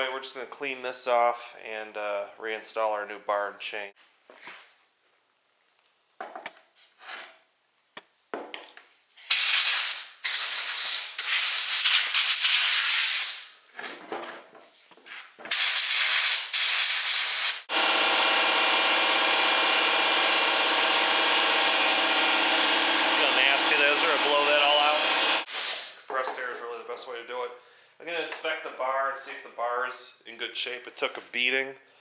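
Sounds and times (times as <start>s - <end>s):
compressed air hissing: 9.2s - 13.5s, 15.5s - 17.7s, 23.0s - 26.0s
electric motor humming: 17.6s - 25.5s.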